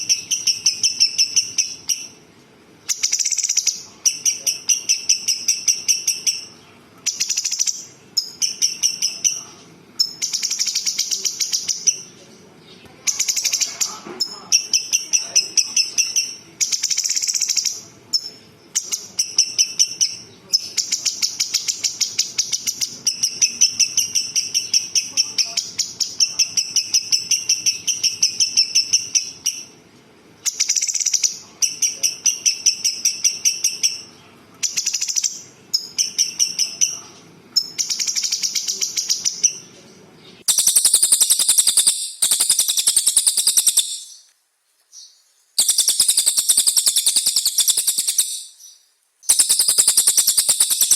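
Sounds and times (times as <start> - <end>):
songbird rattling trills: 40.4 - 44.3, 45.6 - 48.6, 49.3 - 50.9.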